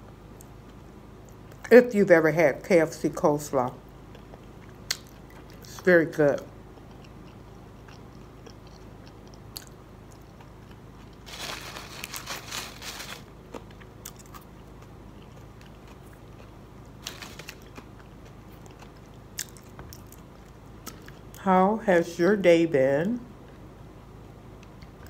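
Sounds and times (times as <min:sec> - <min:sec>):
person chewing crunchy food: 0:03.9 - 0:05.8, 0:06.4 - 0:21.4.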